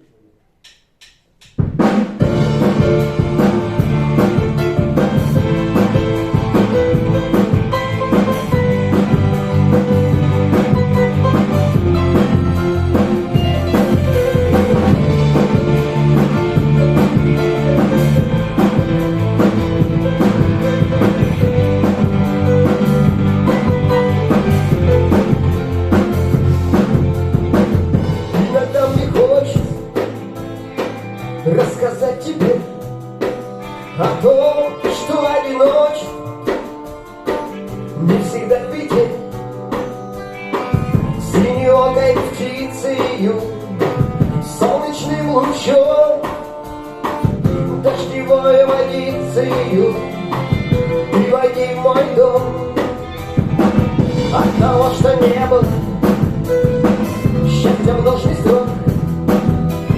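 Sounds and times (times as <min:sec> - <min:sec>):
drum kit steady beat: 0:00.7 - 0:59.9
band playing instrumental rock: 0:01.6 - 0:59.9.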